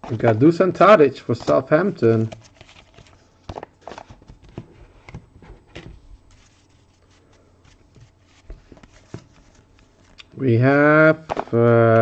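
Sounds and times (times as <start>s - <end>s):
cards clicking and rustling: 0.0s - 6.4s, 11.2s - 12.0s.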